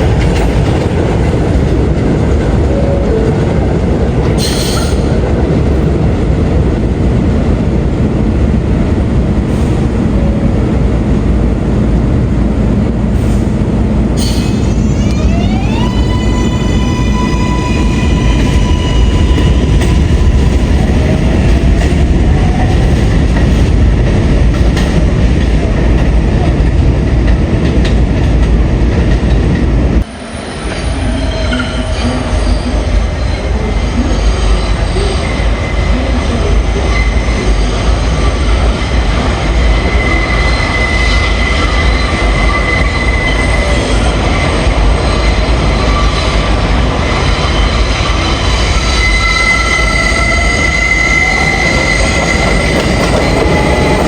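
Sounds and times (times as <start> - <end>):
subway train rumbling on rails: 0.0 - 54.0
train wheels squealing: 4.4 - 5.2, 14.2 - 21.1, 30.1 - 39.0, 39.6 - 54.0.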